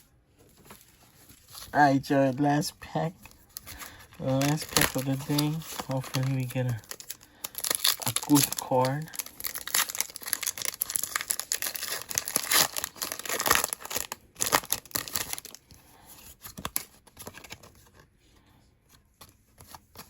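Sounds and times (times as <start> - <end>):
foil wrapper tearing and crinkling: 3.2 - 15.6.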